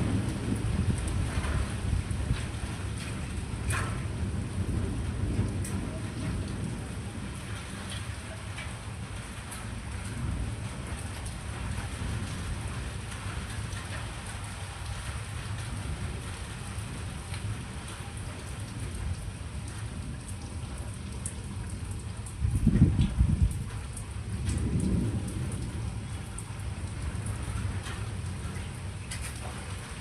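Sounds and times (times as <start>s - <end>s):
steady rain falling: 0.0s - 30.0s
thunder rumbling: 0.0s - 30.0s.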